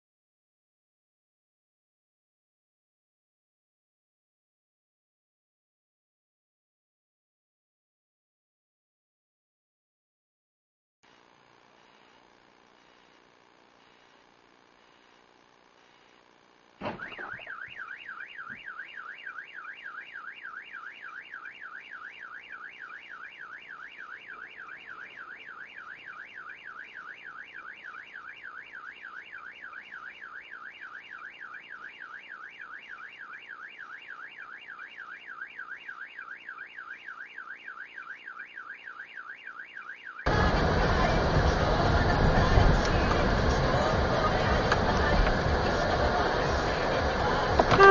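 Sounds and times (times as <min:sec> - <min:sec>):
car alarm warbling: 0:16.9 - 0:40.4, 0:47.3 - 0:47.9.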